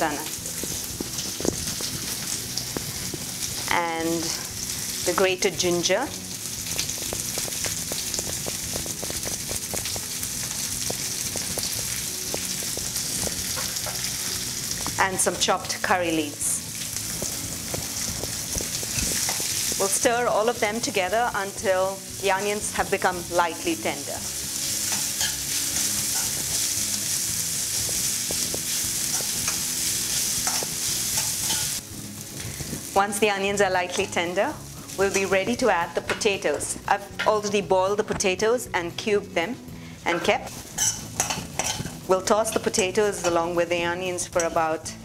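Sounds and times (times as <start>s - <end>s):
food sizzling in hot oil: 0.0s - 38.4s, 39.6s - 45.0s
oil crackling and popping: 0.1s - 33.0s, 40.4s - 43.0s.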